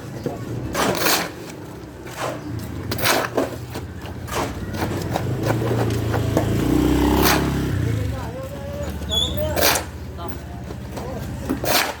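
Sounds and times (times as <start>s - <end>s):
knocks and clatter: 0.2s - 7.7s.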